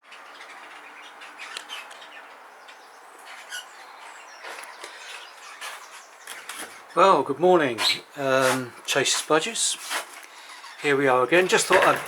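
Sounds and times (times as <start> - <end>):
budgerigars chattering: 0.1 - 7.0.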